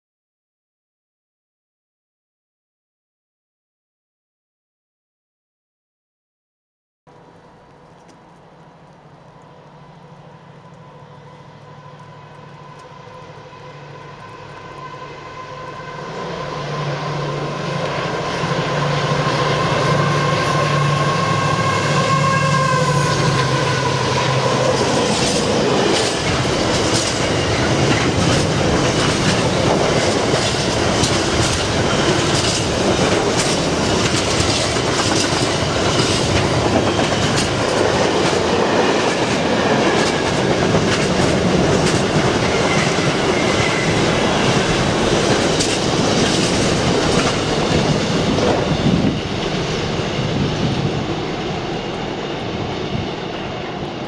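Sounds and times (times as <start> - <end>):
wheels clicking over rail joints: 7.1 - 14.8, 24.2 - 48.8
diesel locomotive whine and drone: 7.1 - 54.0
rush of wagon wheel noise: 11.8 - 53.8.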